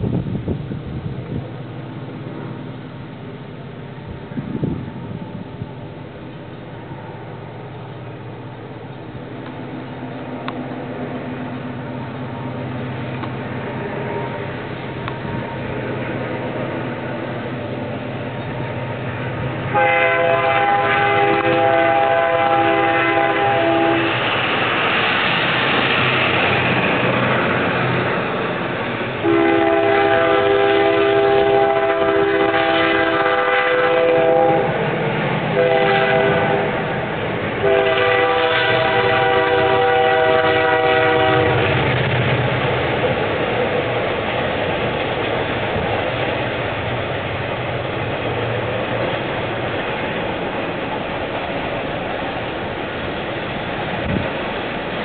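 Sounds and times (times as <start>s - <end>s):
train rumbling: 0.0s - 55.0s
locomotive air horn: 19.7s - 24.2s, 29.2s - 34.8s, 35.6s - 36.9s, 37.6s - 41.6s.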